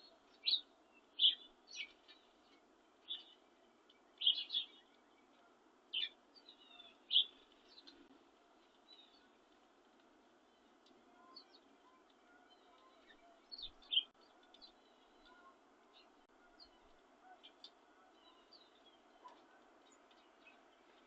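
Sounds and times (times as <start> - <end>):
low background hiss: 0.0 - 21.0
small birds chirping: 0.0 - 21.0.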